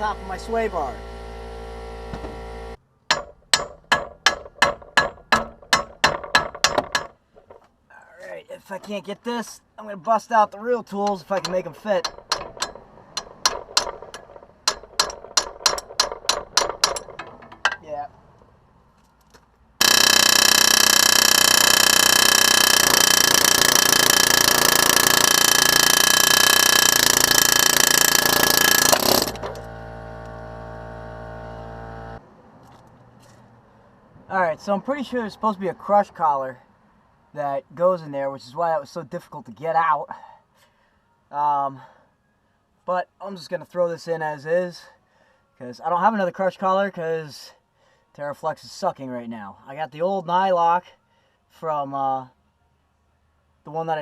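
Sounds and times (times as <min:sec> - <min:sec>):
hammer striking metal: 0:03.1 - 0:07.6, 0:11.0 - 0:17.8.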